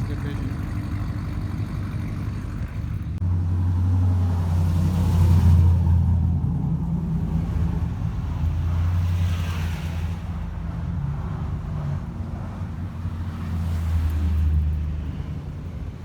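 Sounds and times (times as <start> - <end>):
pickup truck engine passing: 0.0 - 12.0.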